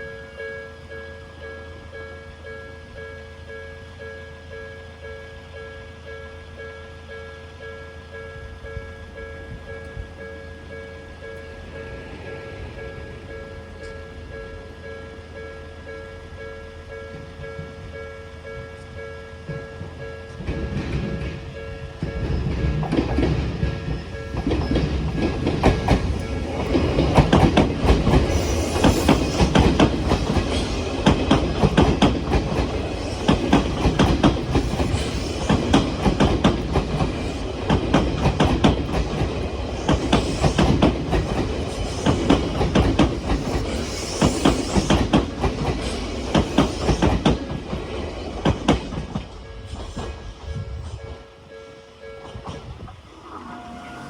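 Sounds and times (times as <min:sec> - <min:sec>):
crossing warning bell ringing: 0:00.0 - 0:54.0
train wheel clatter: 0:16.9 - 0:51.3
wheel squeal: 0:28.2 - 0:29.7, 0:53.1 - 0:54.0.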